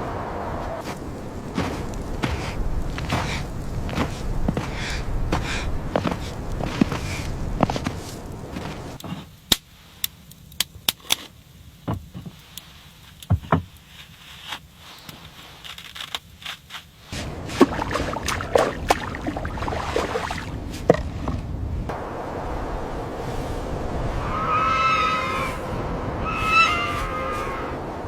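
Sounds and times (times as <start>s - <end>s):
dense steady noise: 17.2s - 28.0s.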